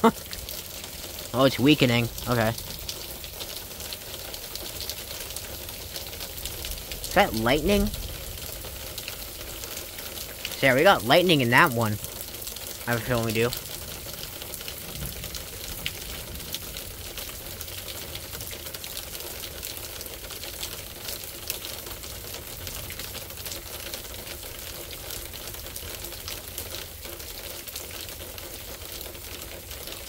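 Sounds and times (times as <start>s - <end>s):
rain hissing: 0.0s - 21.5s
raindrops ticking close: 0.0s - 30.0s.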